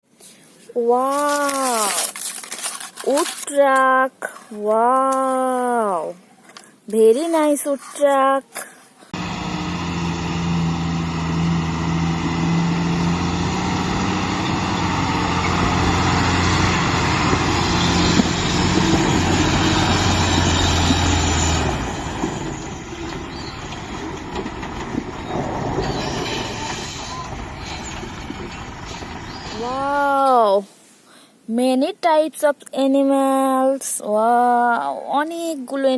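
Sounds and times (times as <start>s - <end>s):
plastic rattle: 1.1s - 4.5s.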